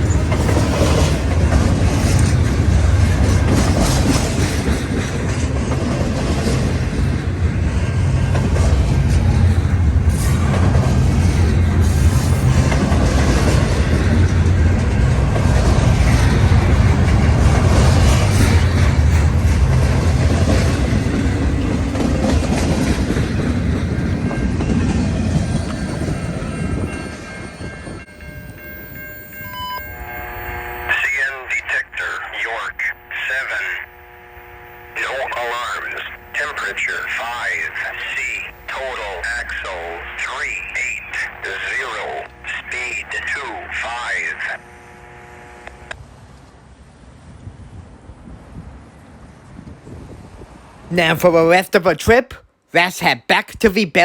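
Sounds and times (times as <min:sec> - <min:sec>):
wheels clattering over rails: 0:00.0 - 0:26.8
freight train rumbling past: 0:00.0 - 0:45.1, 0:46.0 - 0:51.9.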